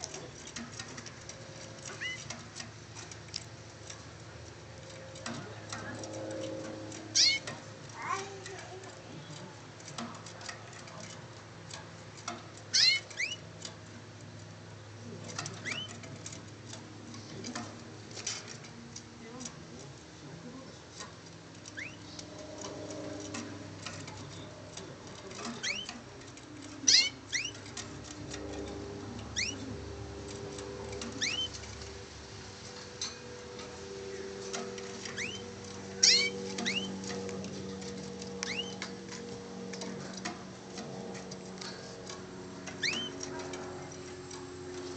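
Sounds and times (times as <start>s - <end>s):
canary chirping: 0.0s - 19.5s, 20.4s - 44.9s
sharp clicks: 33.0s - 44.9s.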